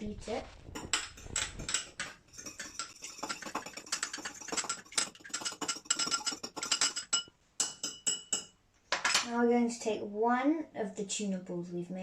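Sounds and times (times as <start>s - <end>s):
fork beating egg in bowl: 0.7s - 8.5s.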